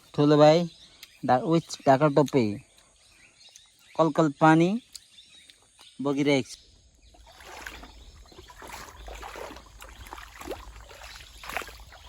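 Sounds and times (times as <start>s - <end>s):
stream water babbling: 7.0s - 12.0s.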